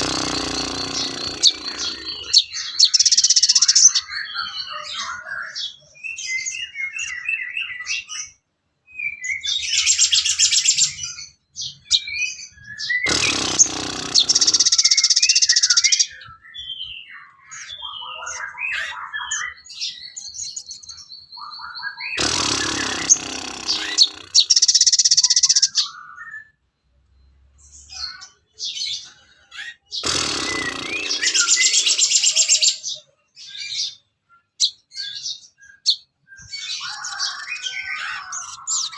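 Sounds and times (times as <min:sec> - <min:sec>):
harsh burst of birdsong: 0:00.0 - 0:04.4, 0:09.7 - 0:16.2, 0:22.0 - 0:26.1, 0:28.8 - 0:34.0
bird chirps and trills: 0:00.0 - 0:08.4, 0:09.0 - 0:38.9.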